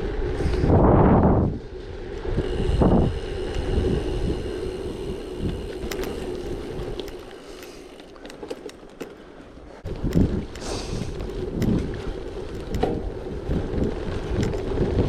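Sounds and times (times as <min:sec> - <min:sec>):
wind buffeting microphone: 0:00.0 - 0:07.7, 0:09.8 - 0:15.0
bike tyres rolling on rough surface: 0:00.0 - 0:15.0
sharp clicks: 0:05.4 - 0:09.2.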